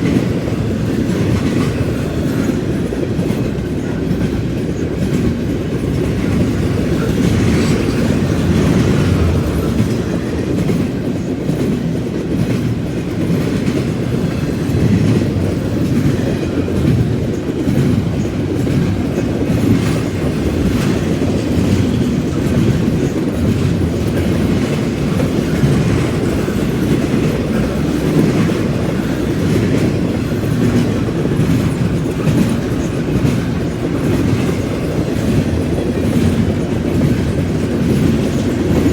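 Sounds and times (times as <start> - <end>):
freight train rumbling past: 0.0 - 38.9
wheels clacking over track joints: 0.0 - 38.9.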